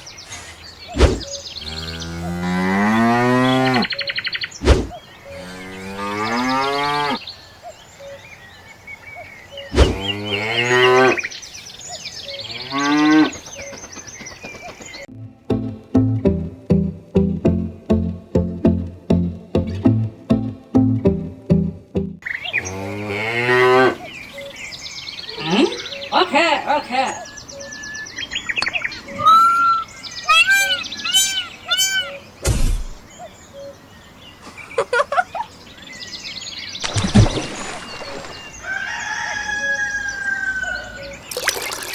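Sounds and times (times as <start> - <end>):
bird chirping: 0.0 - 2.4, 3.3 - 15.1, 24.0 - 41.9
cow mooing: 1.6 - 3.9, 5.3 - 7.2
plucked-string music: 15.1 - 22.2.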